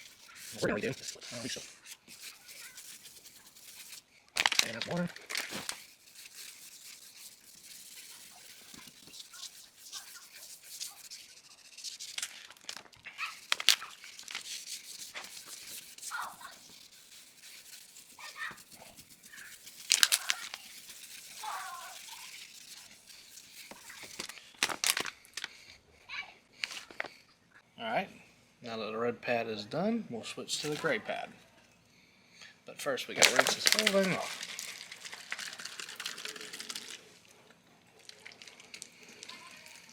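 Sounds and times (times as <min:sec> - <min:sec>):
scratchy wet sanding: 0:00.0 - 0:25.0, 0:30.5 - 0:31.0, 0:33.2 - 0:37.0
pad squeaking on plastic: 0:13.1 - 0:25.0.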